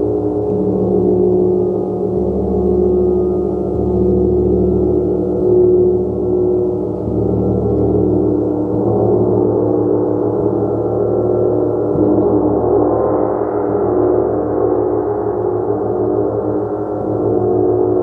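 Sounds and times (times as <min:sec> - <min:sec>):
gong shimmering: 0:00.0 - 0:18.0
soft mallet strokes on gong: 0:00.0 - 0:18.0.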